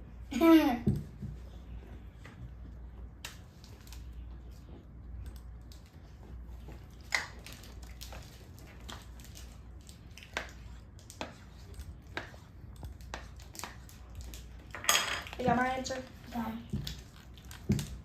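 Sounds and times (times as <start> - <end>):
low room hum: 0.0 - 18.0
people chewing crunchy snacks: 16.8 - 18.0.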